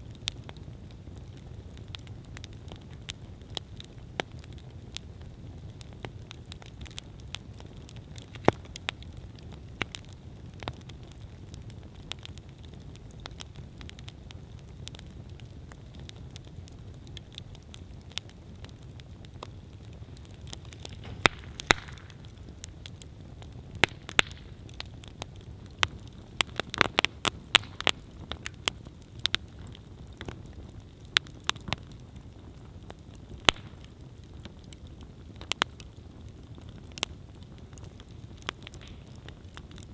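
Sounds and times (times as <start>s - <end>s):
campfire flames rumbling: 0.0s - 39.9s
fire crackling and popping: 0.0s - 39.9s
fire hiss: 18.4s - 28.9s.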